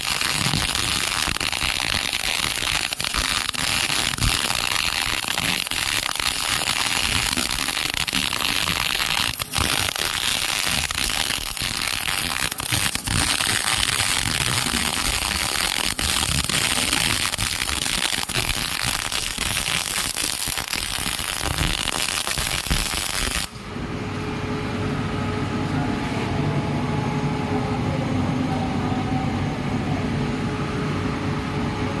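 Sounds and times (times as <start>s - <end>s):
welding arc crackling: 0.0s - 23.6s
steady low hum: 23.5s - 32.0s.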